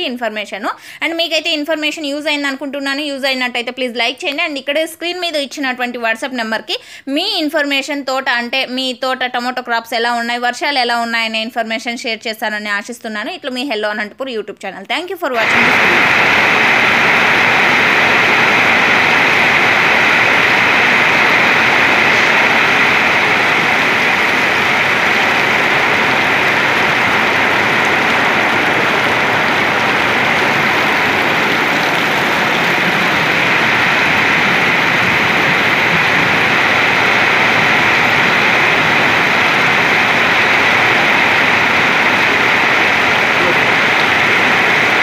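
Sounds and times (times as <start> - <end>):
heavy rain pouring: 15.4 - 45.0.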